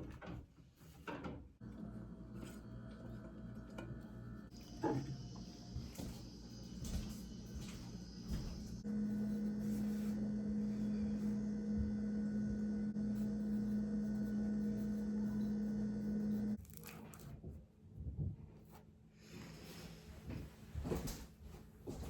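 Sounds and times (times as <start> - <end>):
appliance electric hum: 1.2 - 17.9.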